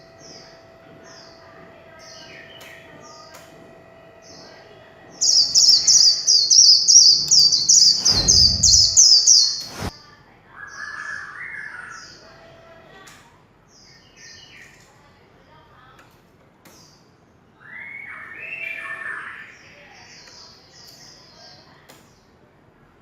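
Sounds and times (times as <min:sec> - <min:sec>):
bird chirping and warbling: 0:05.2 - 0:09.9
low thump: 0:08.0 - 0:09.9.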